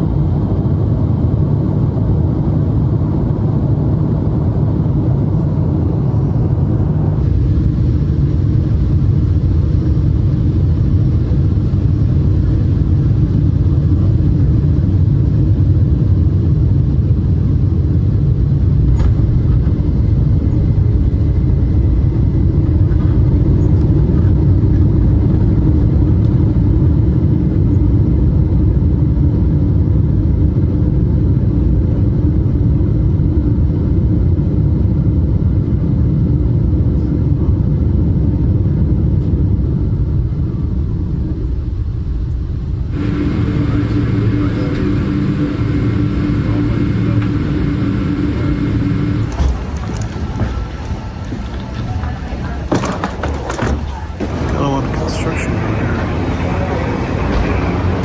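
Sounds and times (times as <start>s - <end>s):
airliner cabin engine rumble: 0.0s - 58.0s.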